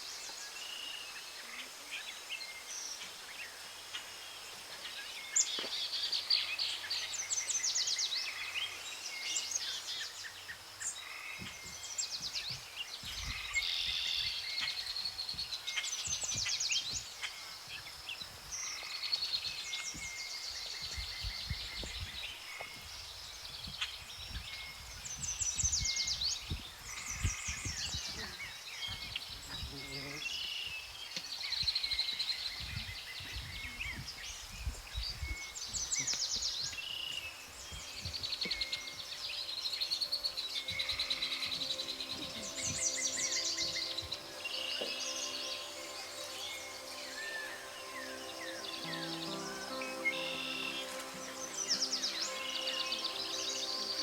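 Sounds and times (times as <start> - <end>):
birds trilling and chirping: 0.0 - 54.0
wind rumble on microphone: 11.4 - 39.0
faint steady high tone: 37.2 - 54.0.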